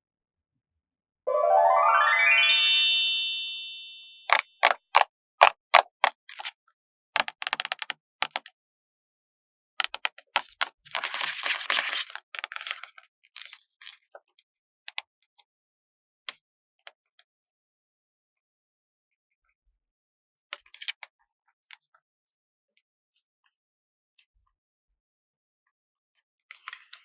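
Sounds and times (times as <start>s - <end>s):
sticker sheet taps and clicks: 7.2s - 8.5s.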